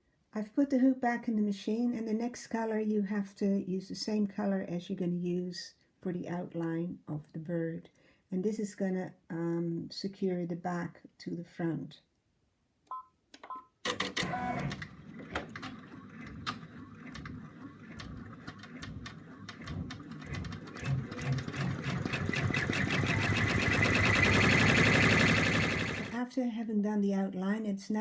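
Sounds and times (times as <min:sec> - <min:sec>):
embroidery machine stitching: 0:13.9 - 0:26.2.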